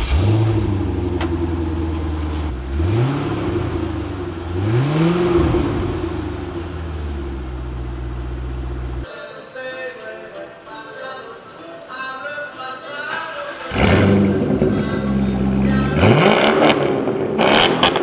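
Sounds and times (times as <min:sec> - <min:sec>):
car engine idling and revving: 0:00.0 - 0:09.1, 0:13.6 - 0:18.0.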